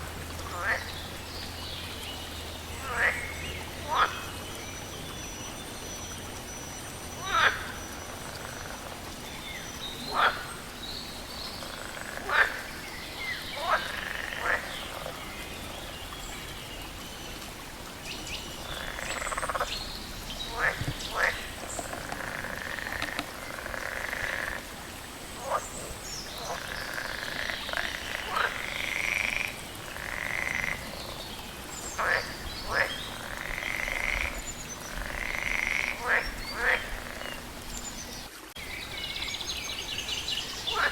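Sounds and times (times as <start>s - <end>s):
frogs croaking in chorus: 0.4s - 1.6s, 2.5s - 4.9s, 5.9s - 17.0s, 17.6s - 39.1s, 40.0s - 40.9s
sharp downward-sweeping frog calls: 7.2s - 8.9s, 10.0s - 10.7s, 11.6s - 12.8s, 13.6s - 15.2s, 18.6s - 19.8s, 20.4s - 31.2s, 32.0s - 37.4s.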